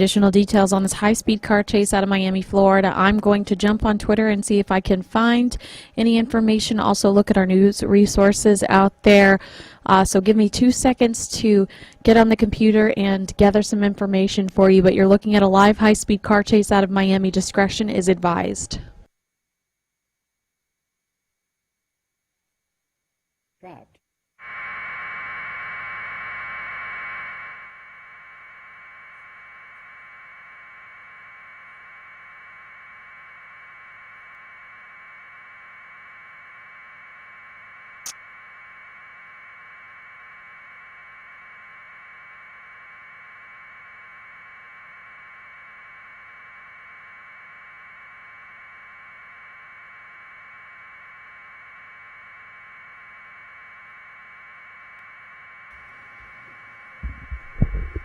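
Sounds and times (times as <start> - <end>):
electronic static hiss: 24.4 - 58.0.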